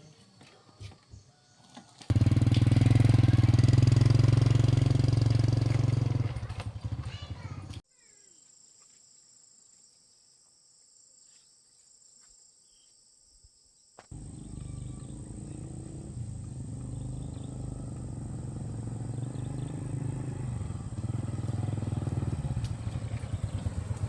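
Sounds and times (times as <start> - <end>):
motorcycle engine running: 2.1 - 7.8, 14.1 - 24.0.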